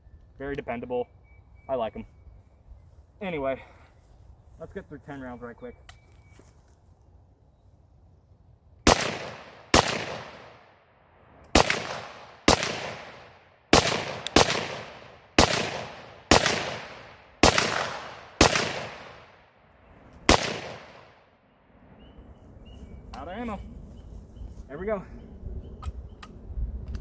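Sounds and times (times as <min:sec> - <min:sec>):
rifle shots with echo: 0:08.8 - 0:10.8, 0:11.5 - 0:19.5, 0:20.2 - 0:21.3.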